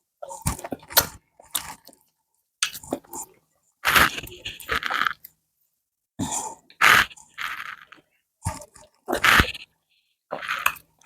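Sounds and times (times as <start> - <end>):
chewing and wet smacking: 0.2 - 3.4.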